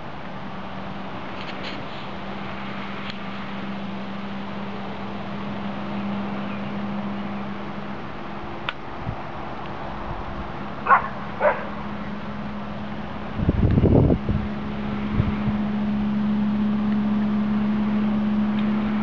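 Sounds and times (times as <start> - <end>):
steady low hum: 0.0 - 19.0
dog barking: 10.8 - 11.8.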